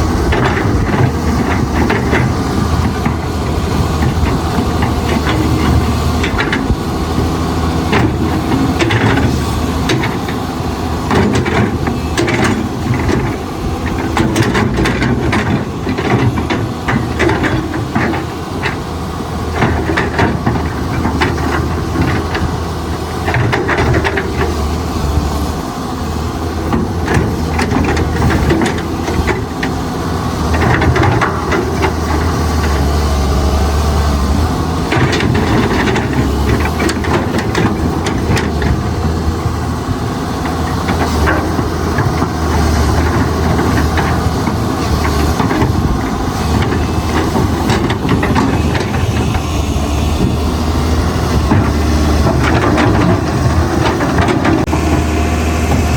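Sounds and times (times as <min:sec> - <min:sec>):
excavator diesel engine drone: 0:00.0 - 0:55.9.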